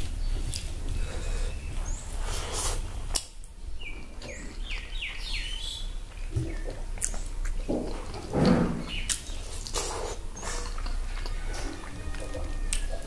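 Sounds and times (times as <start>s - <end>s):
chewing and smacking mouth noises: 0.0s - 1.0s, 4.2s - 13.0s
bird chirping falling notes: 8.7s - 10.7s.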